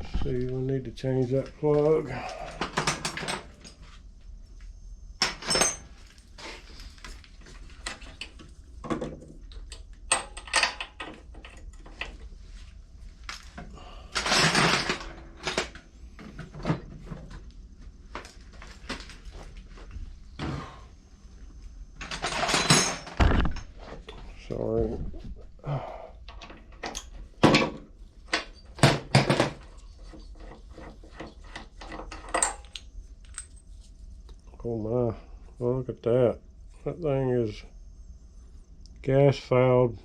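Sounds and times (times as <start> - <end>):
metal tools clinking: 5.2 - 5.9, 22.0 - 23.7, 31.9 - 33.7.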